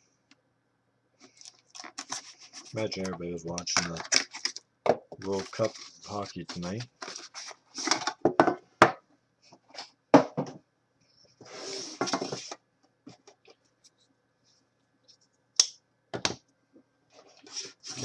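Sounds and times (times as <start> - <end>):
packaging rustling scrape: 1.2 - 3.0, 5.2 - 8.1, 11.4 - 12.6.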